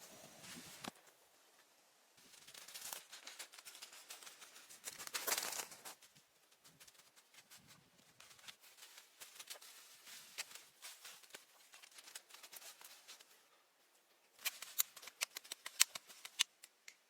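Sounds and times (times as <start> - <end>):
rustling and scraping handling: 2.2 - 16.8
sharp clicks: 14.4 - 17.0.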